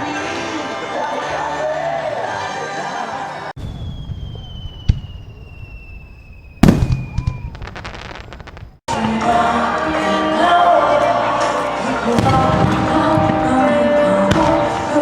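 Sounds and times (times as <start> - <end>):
firework whistle falling: 3.6 - 8.8
fireworks crackling: 3.6 - 9.2, 11.4 - 15.0
fireworks bangs: 3.6 - 9.6, 11.5 - 15.0.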